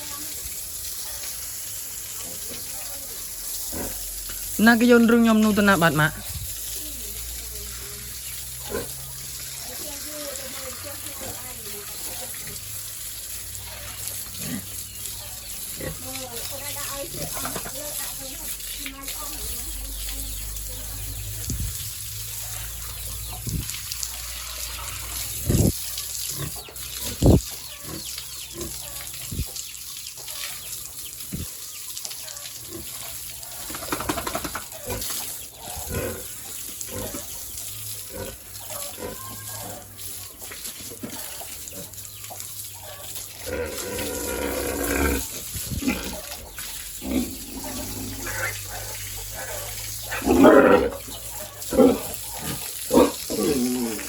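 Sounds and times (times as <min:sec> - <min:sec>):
pigs grunting and squealing: 0:03.5 - 0:04.5, 0:08.6 - 0:09.1, 0:17.0 - 0:18.0, 0:34.6 - 0:37.4, 0:38.0 - 0:40.1, 0:43.0 - 0:54.0.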